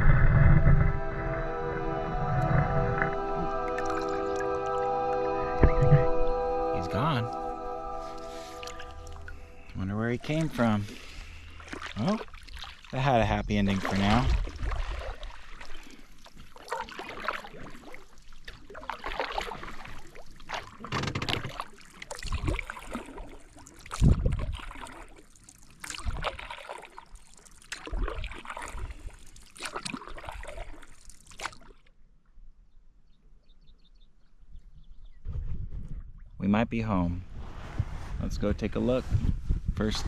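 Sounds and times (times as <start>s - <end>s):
paddle strokes splashing in water: 10.3s - 13.0s, 13.6s - 31.9s.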